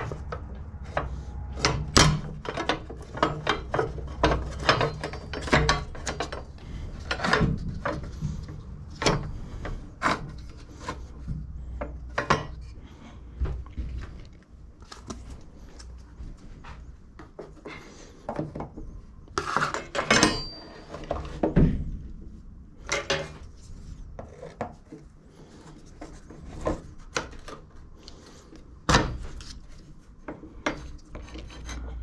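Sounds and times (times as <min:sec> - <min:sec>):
clicks and knocks of hand work: 0:00.0 - 0:12.8
low steady hum: 0:00.0 - 0:32.0.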